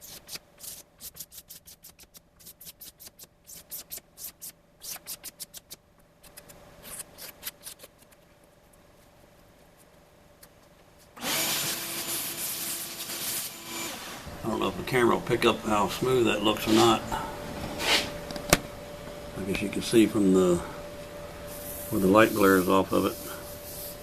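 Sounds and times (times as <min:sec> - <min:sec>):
razor blade scraping plastic: 0:00.0 - 0:08.2
loud humming machine: 0:11.2 - 0:24.0.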